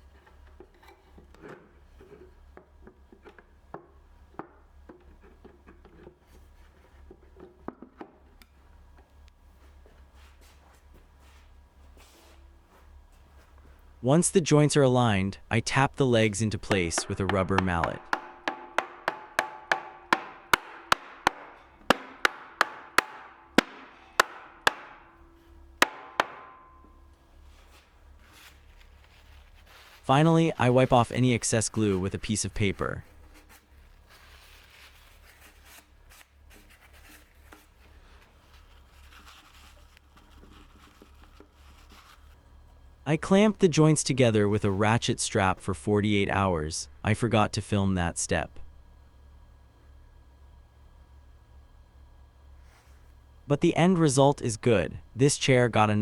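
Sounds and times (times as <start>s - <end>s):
wooden chair leg knocks: 16.7s - 25.0s.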